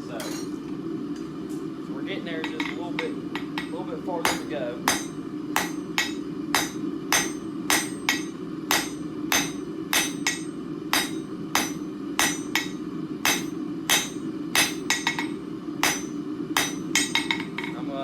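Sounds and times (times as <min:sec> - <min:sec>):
steady low hum: 0:00.0 - 0:18.0
hammer striking steel on anvil: 0:02.4 - 0:17.8.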